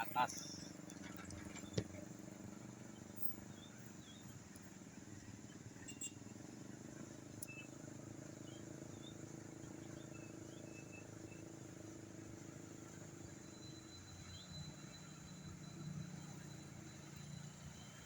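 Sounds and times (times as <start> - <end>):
vehicle engine running: 0.0 - 18.0
faint high chirps: 7.4 - 7.8.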